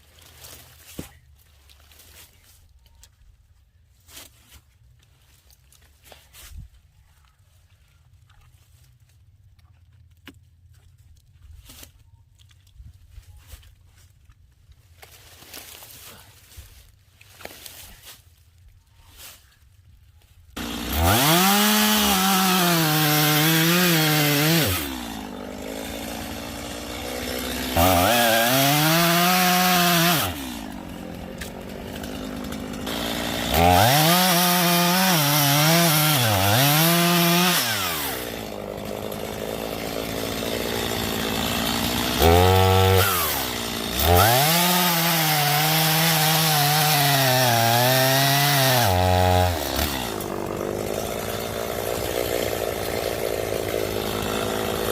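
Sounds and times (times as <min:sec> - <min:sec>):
chainsaw cutting wood: 0:20.6 - 0:54.9.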